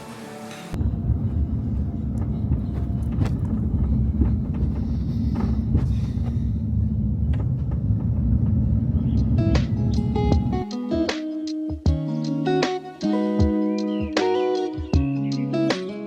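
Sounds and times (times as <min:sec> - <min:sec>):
loud low rumble: 0:00.8 - 0:10.6
plucked guitar music: 0:09.0 - 0:16.0.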